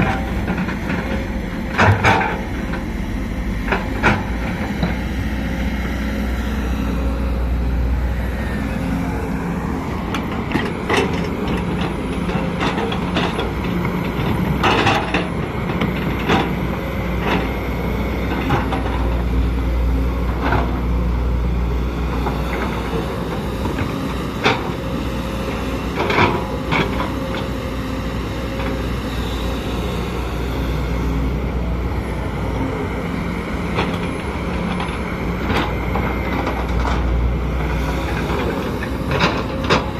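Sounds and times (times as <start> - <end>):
metallic clanks and knocks: 0.0 - 2.8
excavator diesel engine running: 0.0 - 39.9.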